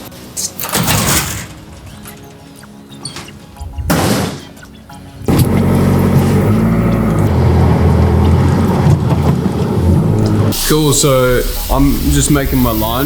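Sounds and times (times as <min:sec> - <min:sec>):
truck engine running loudly: 0:05.2 - 0:10.9.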